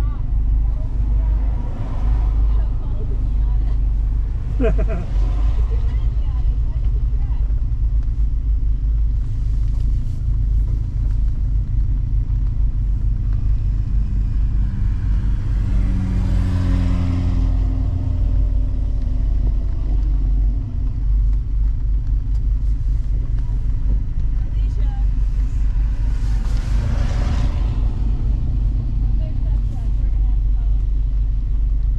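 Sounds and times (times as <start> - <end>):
car engine rumbling: 0.0 - 31.9.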